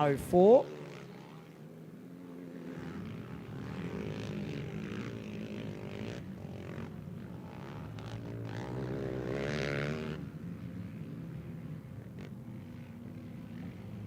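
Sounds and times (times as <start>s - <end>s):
quad bike engines racing: 0.0s - 14.0s.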